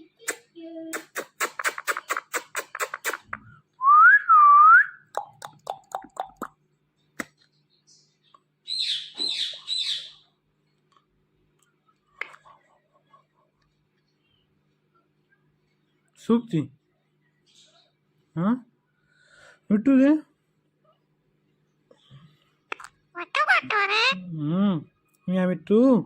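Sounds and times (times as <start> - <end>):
parrot whistling and chirping: 8.7 - 10.2.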